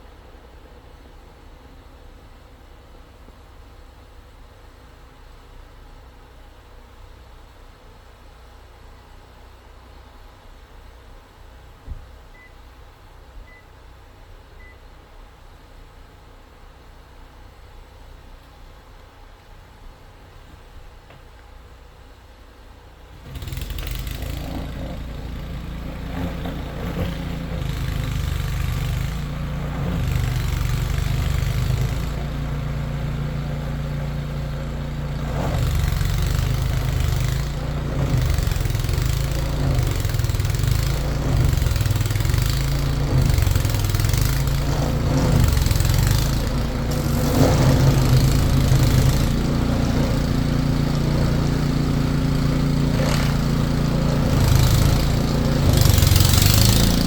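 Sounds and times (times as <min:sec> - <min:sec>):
engine running: 0:22.9 - 0:57.0.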